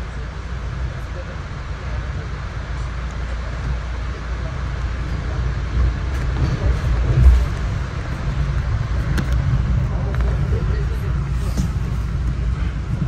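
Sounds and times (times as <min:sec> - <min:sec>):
train wheels rumbling on track: 0:00.0 - 0:13.0
train bump: 0:05.0 - 0:13.0.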